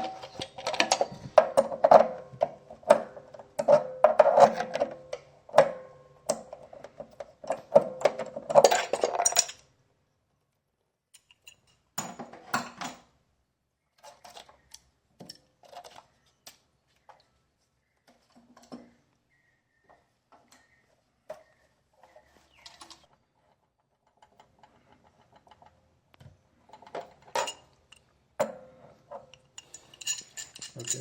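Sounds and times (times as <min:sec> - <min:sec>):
metallic clinking and knocking: 0:00.0 - 0:09.6, 0:11.2 - 0:13.1, 0:26.7 - 0:31.0.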